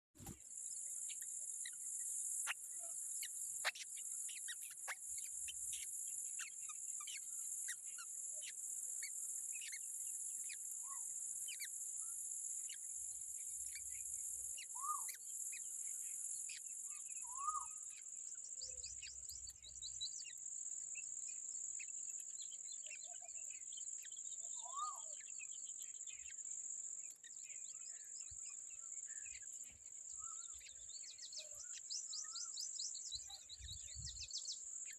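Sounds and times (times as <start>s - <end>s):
short bird chirps: 16.9s - 18.0s, 24.0s - 25.3s, 30.1s - 34.9s.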